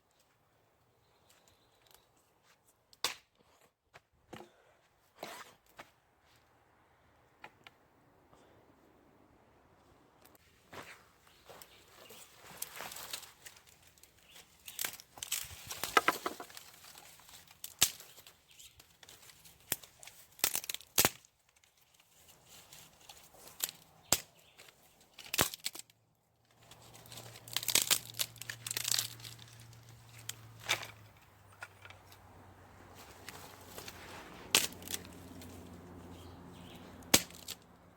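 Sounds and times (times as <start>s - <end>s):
crinkling and rustling: 10.3s - 36.1s.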